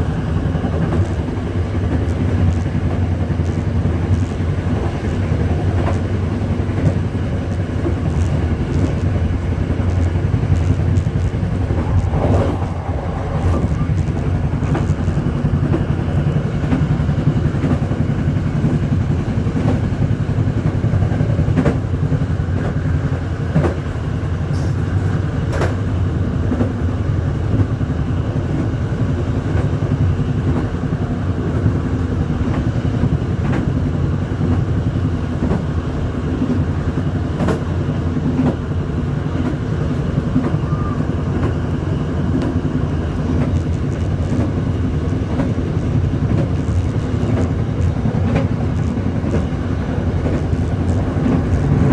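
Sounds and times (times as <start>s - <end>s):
vehicle engine drone: 0.0s - 26.3s.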